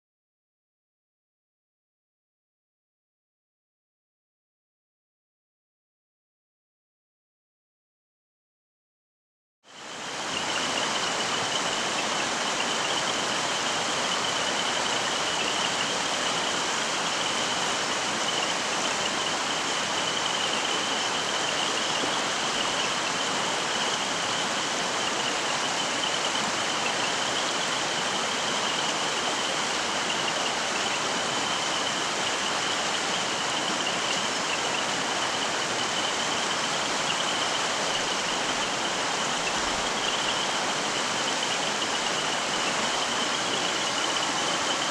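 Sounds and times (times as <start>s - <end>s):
stream water rushing: 9.8s - 44.9s.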